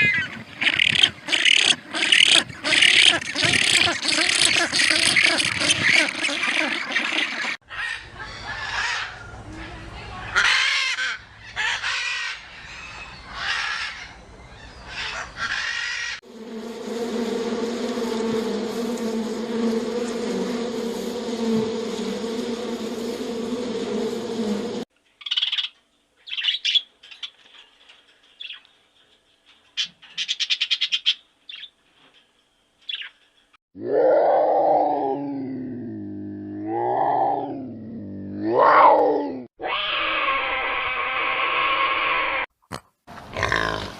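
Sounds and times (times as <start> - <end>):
bird honking calls: 0.0 - 9.0
bird trill: 25.2 - 27.4
bird chirping: 25.2 - 27.7, 29.8 - 31.8, 32.8 - 33.5.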